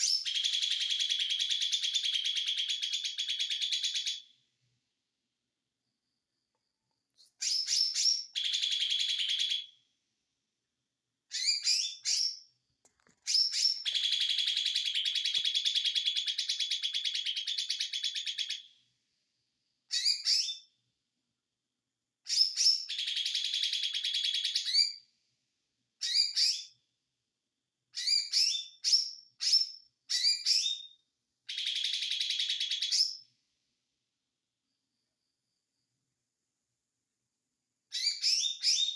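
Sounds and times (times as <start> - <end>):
songbird chirping and trilling: 0.0 - 4.3, 7.1 - 9.8, 11.3 - 12.5, 13.2 - 18.8, 19.9 - 20.7, 22.3 - 25.0, 26.0 - 26.8, 28.0 - 33.4, 37.9 - 38.9.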